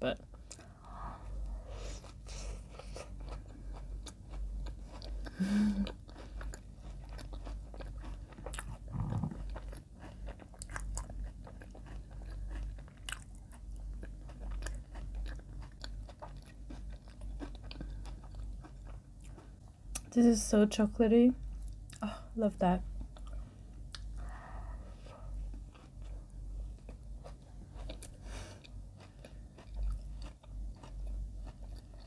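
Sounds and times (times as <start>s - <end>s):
biting and chewing bread: 2.0s - 20.0s, 25.4s - 32.0s.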